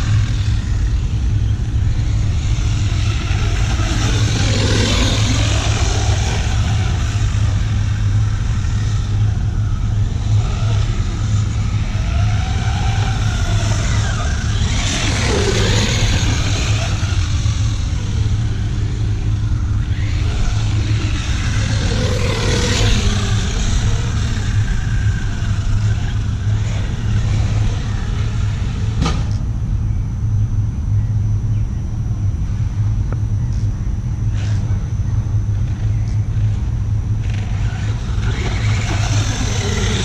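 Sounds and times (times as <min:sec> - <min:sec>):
toy truck motor rumbling: 0:00.0 - 0:29.0, 0:35.5 - 0:40.0.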